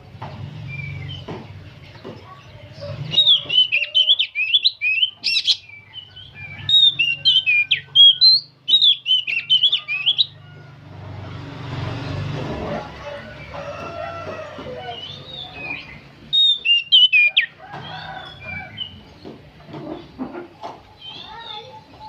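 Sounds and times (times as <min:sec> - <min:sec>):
bird singing whistled notes: 0:03.1 - 0:10.4, 0:14.9 - 0:19.0.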